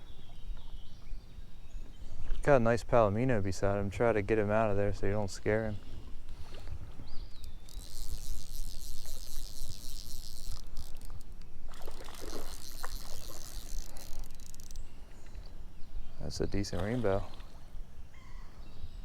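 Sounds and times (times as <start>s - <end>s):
stream water splashing: 7.9s - 15.6s, 16.6s - 17.9s.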